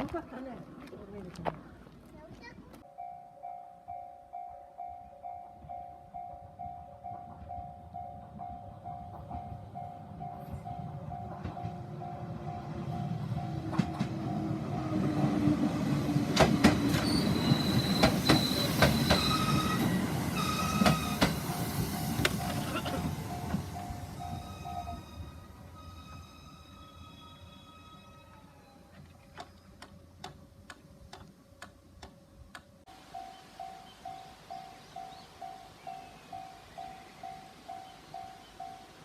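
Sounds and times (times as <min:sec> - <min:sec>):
level-crossing bell dinging: 0:02.8 - 0:14.9, 0:22.4 - 0:28.9
train rumble: 0:04.8 - 0:39.0
wheels squealing: 0:16.8 - 0:29.8.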